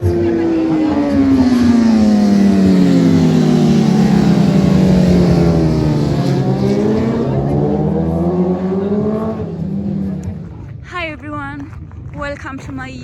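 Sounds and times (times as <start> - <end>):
racing motorcycle engine running: 0.0 - 11.1.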